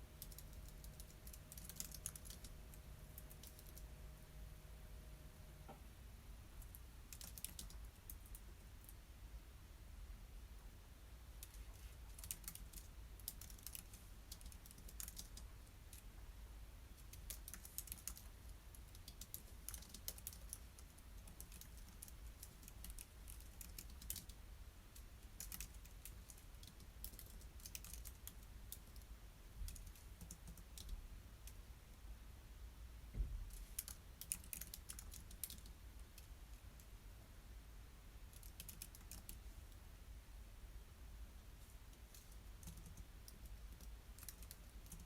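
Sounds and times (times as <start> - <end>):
faint keyboard typing: 0.0 - 4.3, 6.6 - 9.0, 11.3 - 16.2, 16.9 - 32.0, 33.2 - 37.0, 38.3 - 39.8, 41.6 - 45.0.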